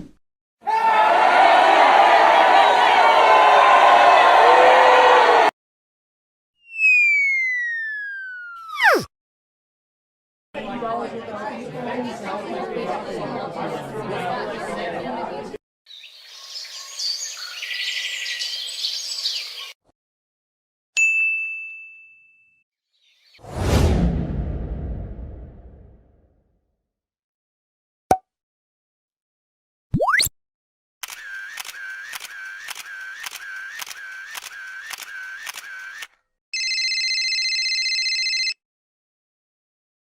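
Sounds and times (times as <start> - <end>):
camera shutter clicks: 31.0 - 36.1
electronic ringing tone: 36.6 - 38.6.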